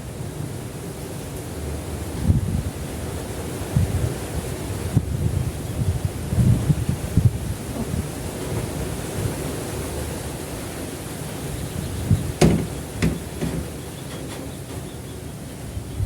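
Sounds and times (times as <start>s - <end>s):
wind rumble on microphone: 1.6s - 16.0s
steady hiss: 5.6s - 15.9s.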